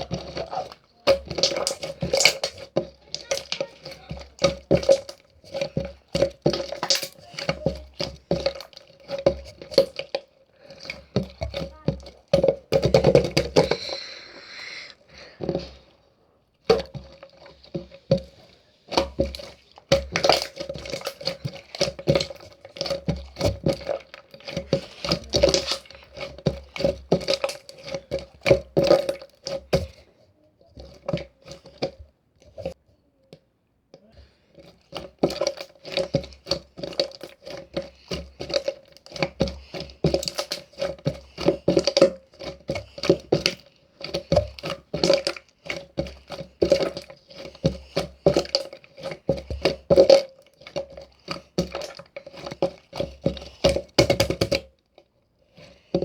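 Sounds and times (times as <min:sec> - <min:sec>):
crackling and crunching clicks: 0:00.0 - 0:15.9, 0:16.7 - 0:29.9.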